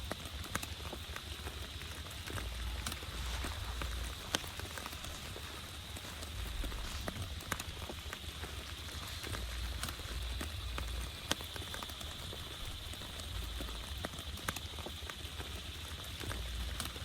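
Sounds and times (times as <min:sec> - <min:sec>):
raindrops ticking: 0:00.0 - 0:17.0
steady rain falling: 0:00.0 - 0:17.0
low rumble: 0:02.2 - 0:14.0.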